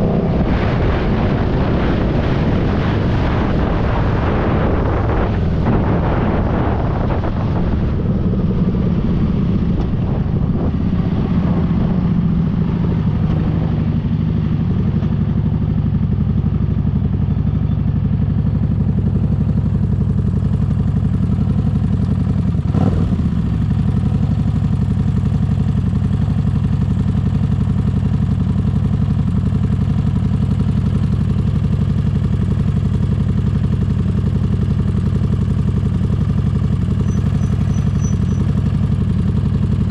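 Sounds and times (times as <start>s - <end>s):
wind noise: 0.0s - 16.6s
motorcycle engine running: 0.0s - 39.9s.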